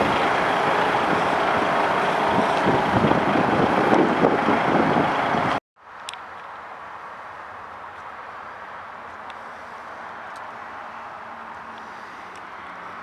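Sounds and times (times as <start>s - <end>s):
diesel engine running: 0.0s - 5.6s.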